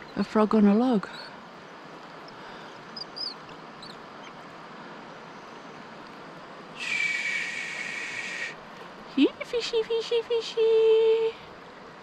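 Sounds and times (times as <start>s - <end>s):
outdoor hiss: 0.0s - 12.0s
bird chirping: 2.2s - 4.4s.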